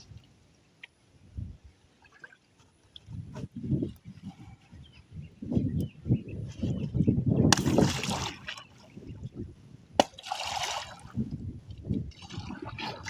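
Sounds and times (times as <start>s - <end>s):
water sloshing around canoe: 1.9s - 5.0s, 7.5s - 9.4s, 10.0s - 13.0s
loud splashes: 7.5s - 8.6s, 10.0s - 11.1s.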